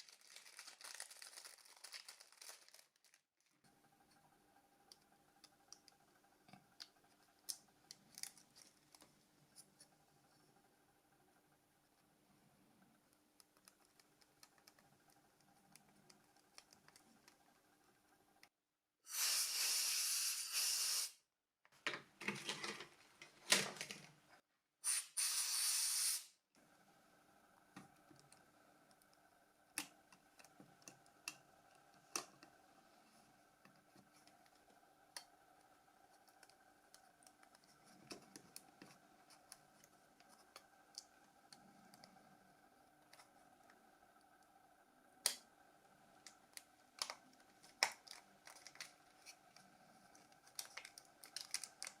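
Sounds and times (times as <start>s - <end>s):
short bursts of hissing: 19.0s - 21.2s, 24.8s - 26.4s
plastic phone parts clicking: 46.2s - 49.5s, 50.1s - 52.0s.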